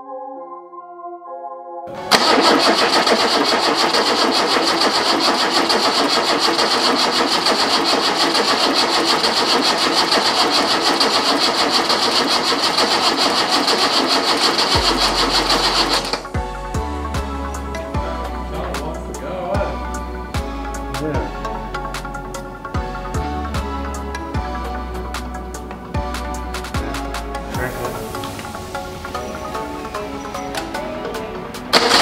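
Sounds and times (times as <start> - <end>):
engine starter cranking: 2.0 - 16.4, 27.6 - 32.0.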